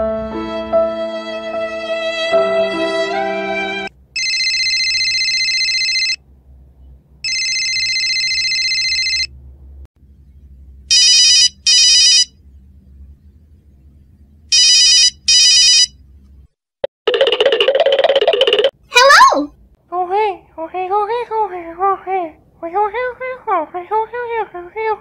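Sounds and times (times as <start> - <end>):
telephone ringing: 4.2 - 6.2, 7.2 - 9.3, 10.9 - 12.3, 14.5 - 15.9.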